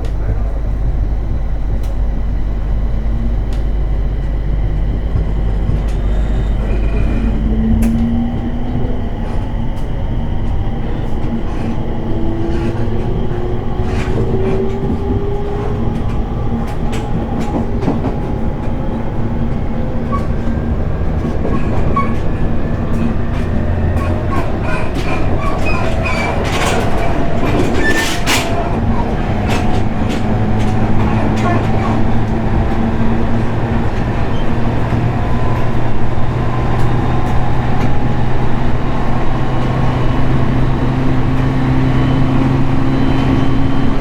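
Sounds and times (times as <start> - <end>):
traction motor whine: 0.0 - 44.0
train wheels rumbling on rail: 0.0 - 44.0
clicks over rail joints: 9.2 - 35.8.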